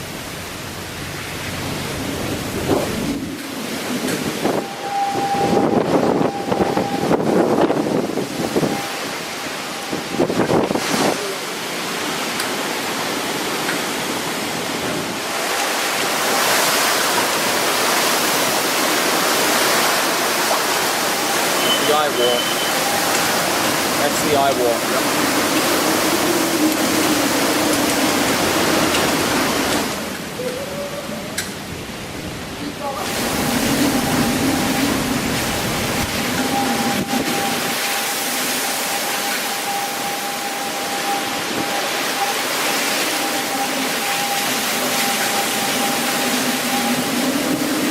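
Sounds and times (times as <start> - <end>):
heavy rain: 0.0 - 47.9
hurricane wind: 0.0 - 47.9
thin high whistle: 4.6 - 7.1, 21.2 - 23.3.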